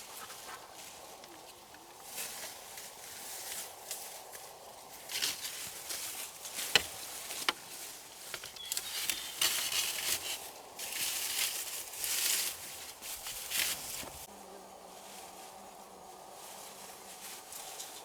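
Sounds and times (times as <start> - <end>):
leaves and sticks rustling: 0.0 - 18.0.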